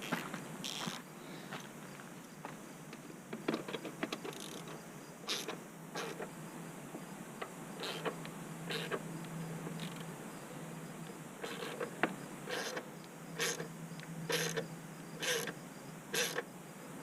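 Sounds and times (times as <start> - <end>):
low steady hum: 4.3 - 17.0.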